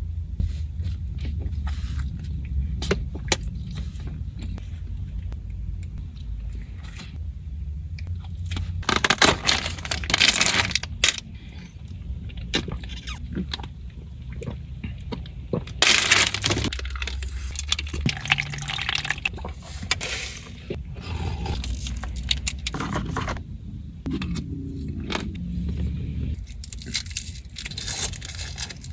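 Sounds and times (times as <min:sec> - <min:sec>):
low steady hum: 0:00.0 - 0:28.9
chewing and crunching: 0:08.0 - 0:20.0, 0:21.1 - 0:23.4, 0:26.4 - 0:28.9
liquid slurping: 0:16.0 - 0:22.8.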